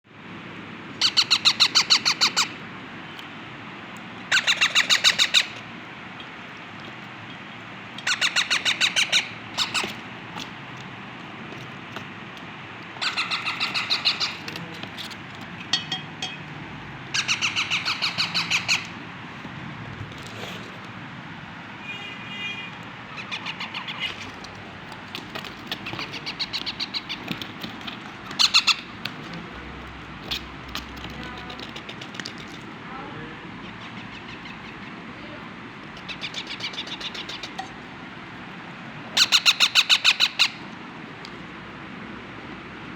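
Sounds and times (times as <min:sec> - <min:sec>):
parrot chicks begging calls: 0:00.9 - 0:02.7, 0:04.1 - 0:10.3, 0:12.8 - 0:15.0, 0:16.6 - 0:19.2, 0:22.7 - 0:32.1, 0:33.5 - 0:35.2, 0:35.8 - 0:38.2, 0:39.0 - 0:40.7.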